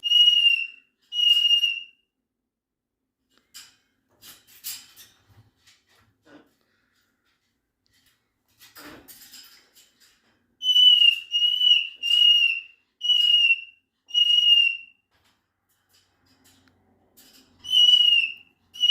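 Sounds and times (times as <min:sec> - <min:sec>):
cockatoo whistle-like calls: 0:00.0 - 0:02.0, 0:10.6 - 0:15.0, 0:17.6 - 0:18.9.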